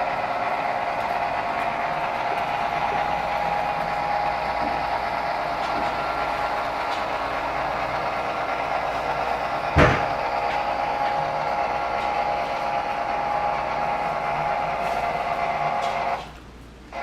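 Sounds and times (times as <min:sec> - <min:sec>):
model train motor hum: 0:00.0 - 0:17.0
wheels rolling on rails: 0:00.0 - 0:17.0
sharp thump: 0:09.8 - 0:10.1.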